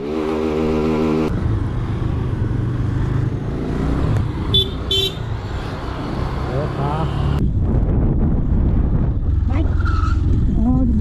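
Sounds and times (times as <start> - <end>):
motorcycle engine rumble: 7.4 - 11.0.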